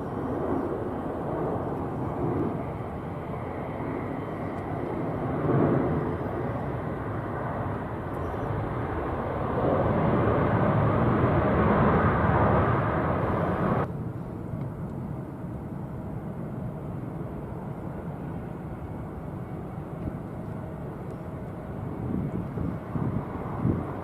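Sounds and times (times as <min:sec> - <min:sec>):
jet engine rumble: 0:00.0 - 0:24.0.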